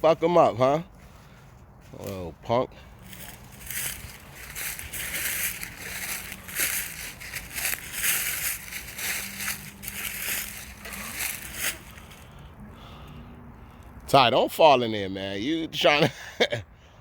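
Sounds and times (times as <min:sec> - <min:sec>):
footsteps crunching through dry leaves: 0:01.0 - 0:12.5.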